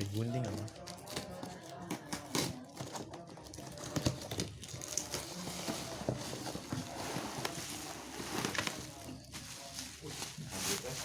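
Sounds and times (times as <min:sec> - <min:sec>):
packaging rustling: 0:04.1 - 0:11.0.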